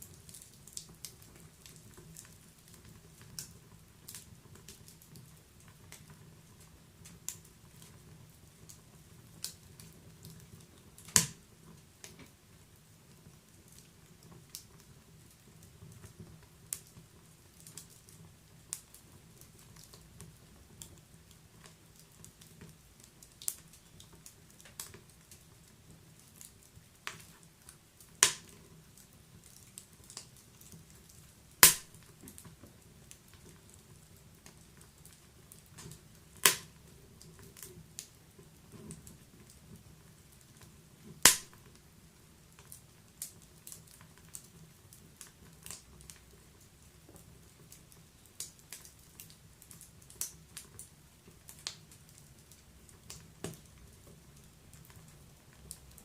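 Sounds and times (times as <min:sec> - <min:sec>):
wood fire crackling: 0:00.0 - 0:56.0
loud sharp fire pops: 0:11.1 - 0:11.4, 0:28.2 - 0:28.5, 0:31.6 - 0:32.1, 0:36.4 - 0:36.7, 0:41.2 - 0:41.6.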